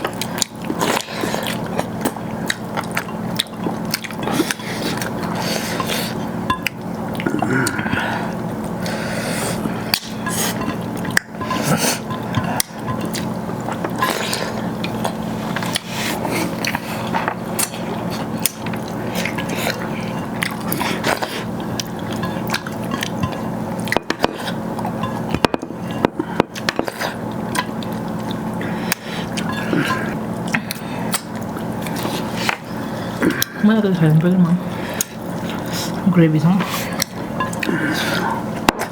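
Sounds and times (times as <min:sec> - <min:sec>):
person chewing food: 0:00.0 - 0:36.0, 0:36.7 - 0:38.9.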